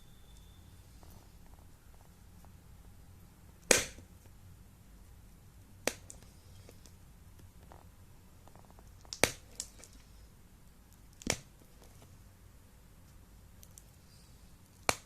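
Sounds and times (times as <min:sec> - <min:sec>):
sharp snaps: 0:03.6 - 0:04.1, 0:05.8 - 0:07.0, 0:09.0 - 0:10.0, 0:14.7 - 0:15.0.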